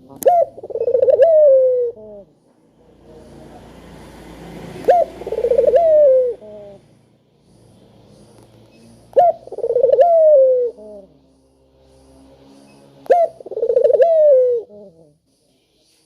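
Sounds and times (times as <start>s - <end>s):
dove cooing: 0.0s - 2.4s, 4.7s - 7.0s, 9.1s - 11.2s, 13.1s - 15.2s.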